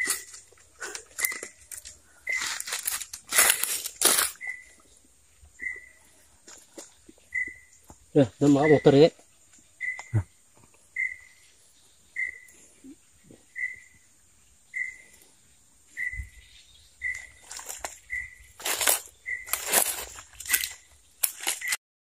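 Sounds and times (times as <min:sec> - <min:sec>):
rustling in dry leaves: 0:00.0 - 0:04.8, 0:17.0 - 0:21.8.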